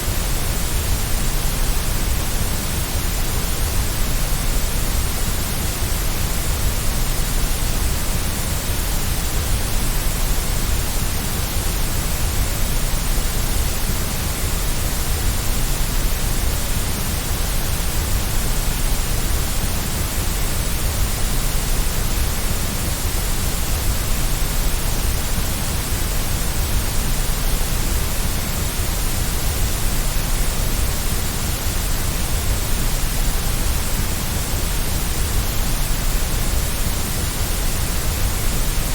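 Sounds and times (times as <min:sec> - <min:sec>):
white noise hiss: 0:00.0 - 0:38.9.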